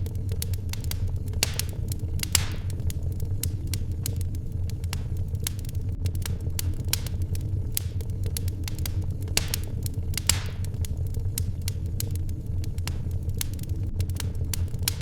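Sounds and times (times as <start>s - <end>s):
low fire rumble: 0.0s - 15.0s
wood fire crackling: 0.0s - 15.0s.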